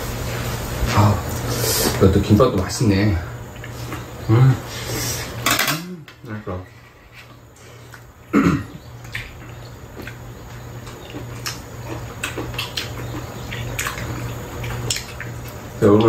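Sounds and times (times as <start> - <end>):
steady low hum: 0.0 - 16.0
wet chewing and lip-smacking: 9.0 - 16.0.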